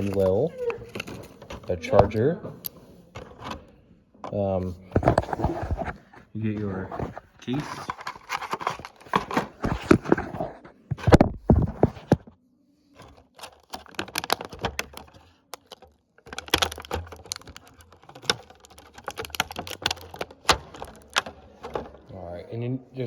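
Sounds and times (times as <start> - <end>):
plastic clicks taps and rustles: 0.0 - 4.4, 7.0 - 10.3, 13.0 - 22.1.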